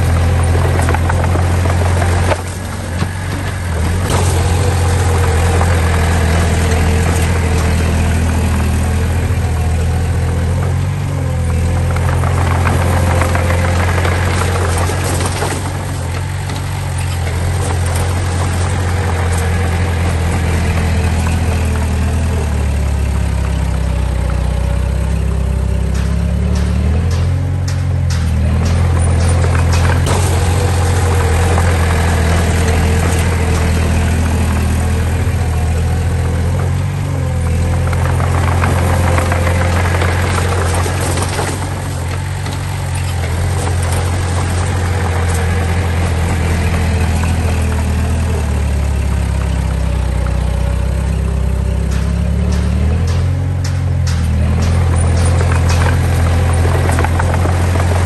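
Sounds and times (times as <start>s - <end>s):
heavy machine engine humming: 0.0s - 58.0s.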